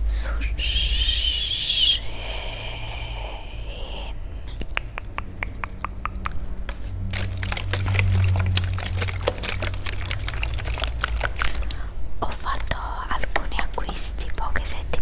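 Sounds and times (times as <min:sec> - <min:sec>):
low hum: 0:00.0 - 0:15.0
tongue clicks: 0:04.4 - 0:15.0.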